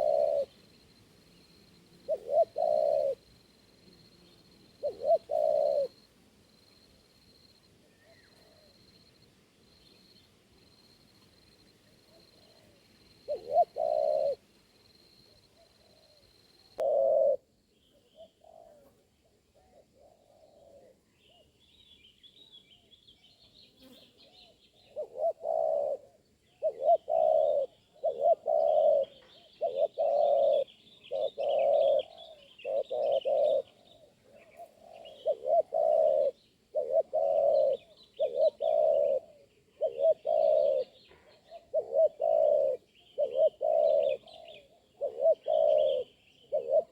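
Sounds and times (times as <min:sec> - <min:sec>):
small birds chirping: 0:00.0 - 0:03.2, 0:20.1 - 0:46.9
dove cooing: 0:00.0 - 0:03.4, 0:04.0 - 0:06.0, 0:07.8 - 0:09.0, 0:11.6 - 0:14.4, 0:15.2 - 0:21.5, 0:24.2 - 0:46.9.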